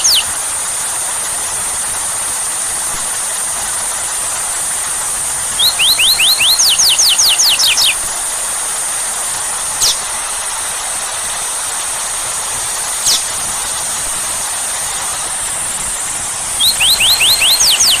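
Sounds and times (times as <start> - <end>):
high whistles dropping in pitch: 0.0 - 0.3, 5.5 - 8.1, 16.5 - 18.0
bird singing rapid notes: 0.0 - 0.4, 5.5 - 8.1, 9.8 - 10.1, 13.0 - 13.4, 16.3 - 18.0
heavy rain hissing: 0.0 - 5.8, 6.6 - 18.0.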